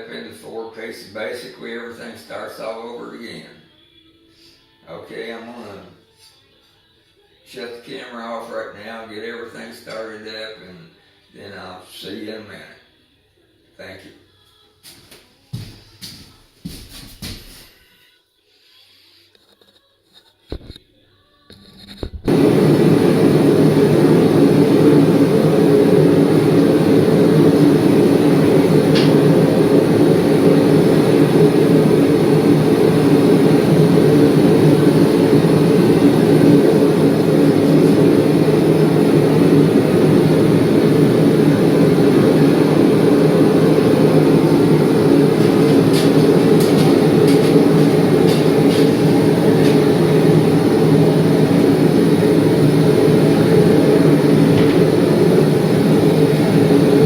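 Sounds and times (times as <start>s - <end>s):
loud machinery roar: 22.3s - 57.0s.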